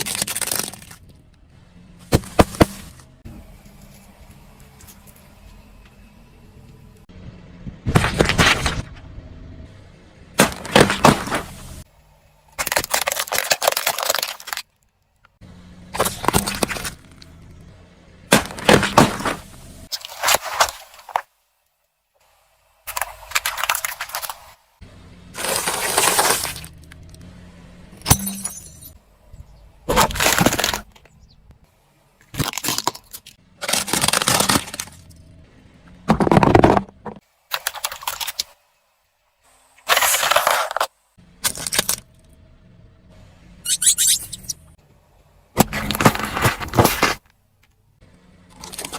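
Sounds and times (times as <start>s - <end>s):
car tyre crushing brittle objects: 0.0s - 5.6s, 7.8s - 9.0s, 10.3s - 31.4s, 32.0s - 38.7s, 39.5s - 42.4s, 45.5s - 48.9s.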